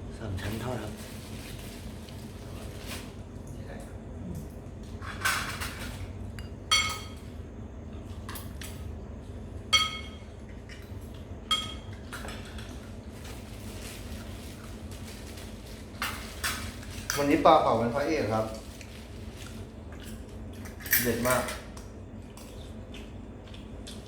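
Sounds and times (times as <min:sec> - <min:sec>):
utensils clinking on dishes: 0:05.0 - 0:07.3, 0:09.7 - 0:12.9, 0:20.0 - 0:21.7.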